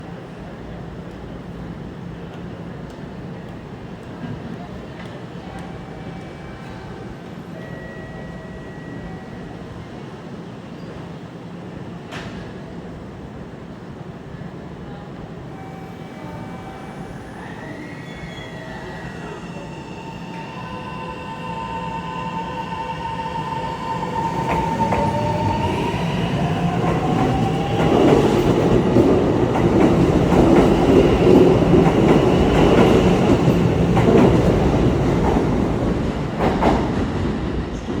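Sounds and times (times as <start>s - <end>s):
wheels rumbling on rail: 15.1s - 38.0s
train traction motor whine: 15.5s - 28.7s.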